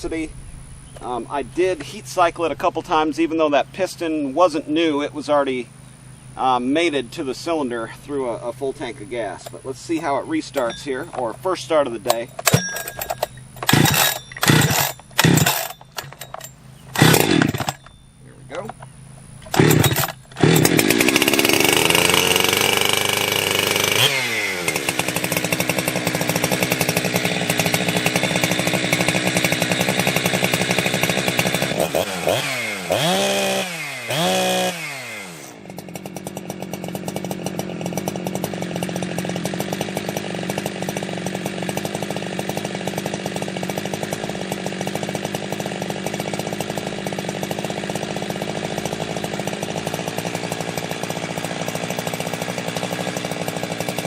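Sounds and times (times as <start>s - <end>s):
chainsaw revving and idling: 0.2s - 54.0s.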